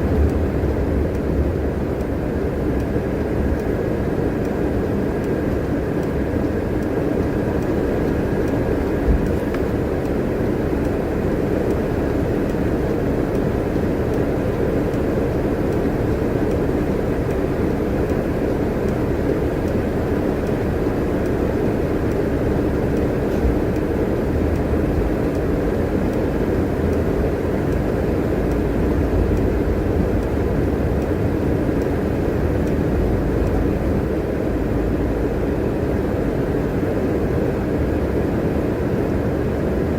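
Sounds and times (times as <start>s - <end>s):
bus engine and road noise: 0.0s - 39.9s
low bumps from road: 8.2s - 9.9s.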